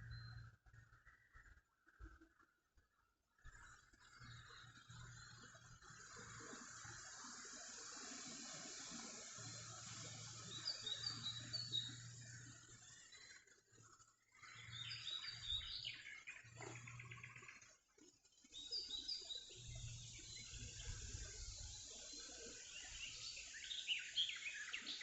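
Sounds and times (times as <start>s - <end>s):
small birds chirping: 3.4s - 25.0s
wind on microphone: 20.5s - 21.8s.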